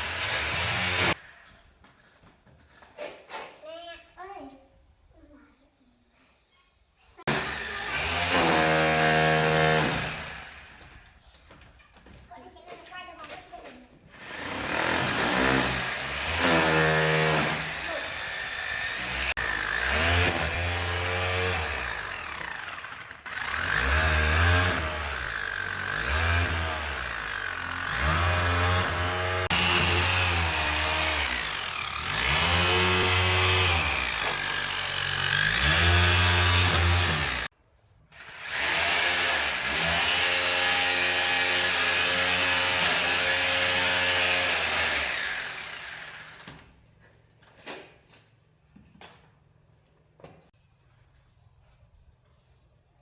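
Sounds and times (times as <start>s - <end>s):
electric power drill running: 7.3s - 11.0s, 14.2s - 37.5s, 38.2s - 46.5s.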